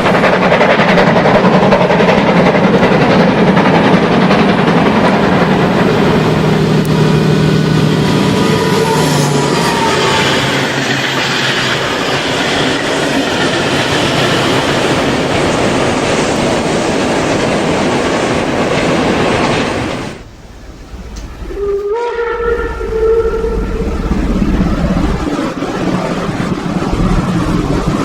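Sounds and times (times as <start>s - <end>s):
train whistle: 6.9s - 11.1s, 21.4s - 24.1s.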